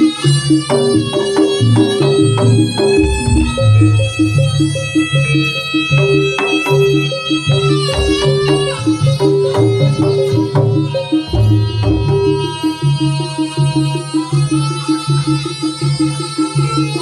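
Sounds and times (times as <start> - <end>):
hand drums striking: 0.0 - 17.0
pitched percussion figure: 0.0 - 17.0
sustained melody: 0.1 - 15.2
low bass line: 3.0 - 4.9, 11.3 - 12.6.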